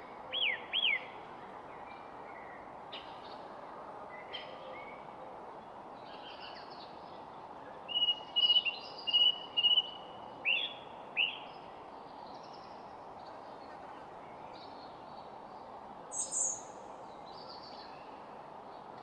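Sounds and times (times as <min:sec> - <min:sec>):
steady outdoor hiss: 0:00.0 - 0:19.0
birds singing and calling: 0:16.1 - 0:16.8.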